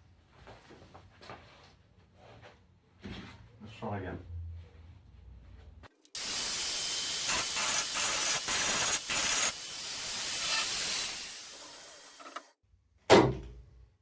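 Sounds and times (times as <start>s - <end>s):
welding arc hissing: 6.2s - 12.5s.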